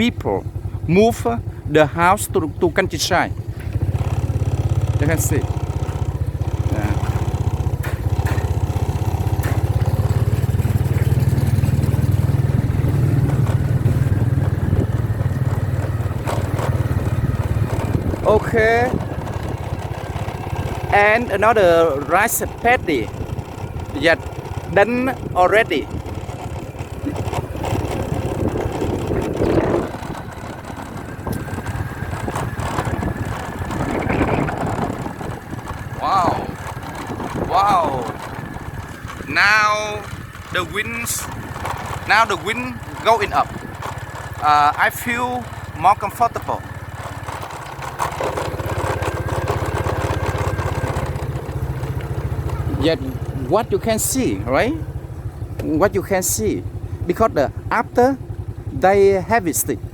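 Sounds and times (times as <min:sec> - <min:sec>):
motorcycle engine cruising: 0:00.0 - 0:59.9
wind buffeting microphone: 0:05.4 - 0:20.9, 0:22.4 - 0:44.4.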